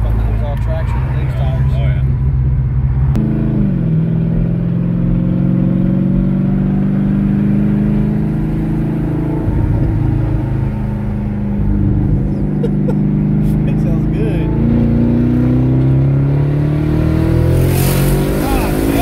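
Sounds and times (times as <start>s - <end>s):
car engine heard from inside: 0.0s - 19.0s.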